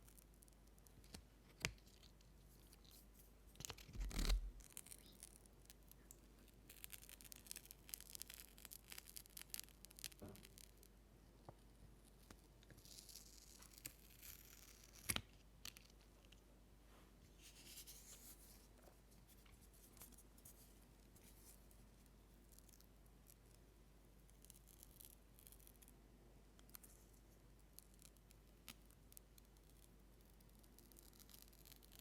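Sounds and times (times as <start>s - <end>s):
rustling and scratching: 1.8s - 5.4s, 17.3s - 21.9s.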